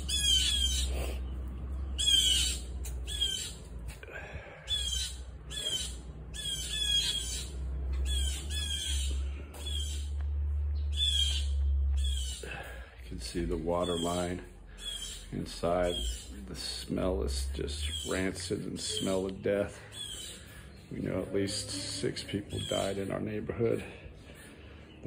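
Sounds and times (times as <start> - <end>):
birds squawking: 0.0 - 25.0
steady low hum: 0.0 - 25.0.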